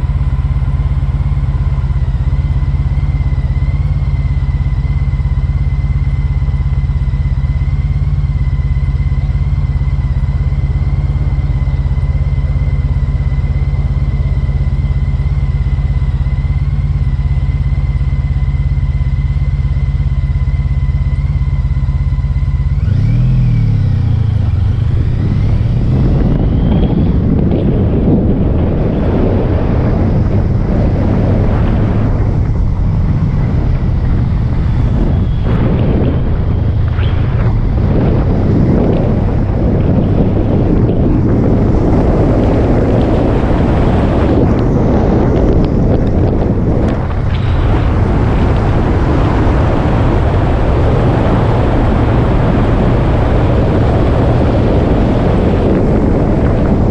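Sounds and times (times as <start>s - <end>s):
motorcycle engine revving: 0.0s - 56.9s
wind noise on microphone: 0.0s - 56.9s.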